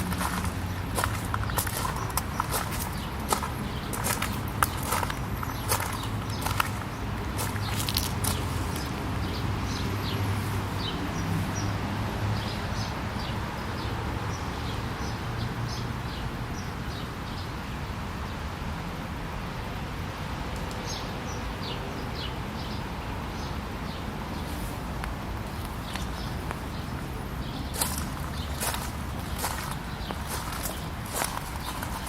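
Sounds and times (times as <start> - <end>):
birds chirping: 0.0 - 11.0, 21.6 - 32.0
steady background noise: 0.0 - 32.0.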